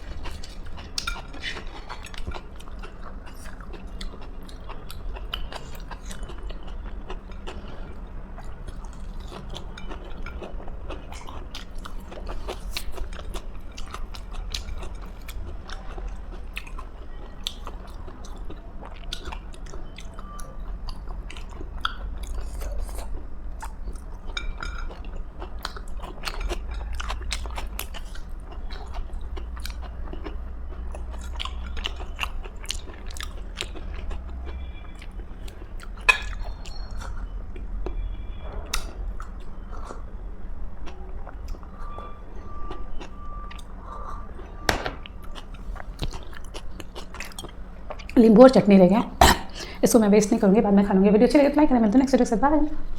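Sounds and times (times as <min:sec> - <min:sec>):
steady low hum: 0:00.0 - 0:36.4
close-miked chewing and crunching: 0:00.0 - 0:50.4.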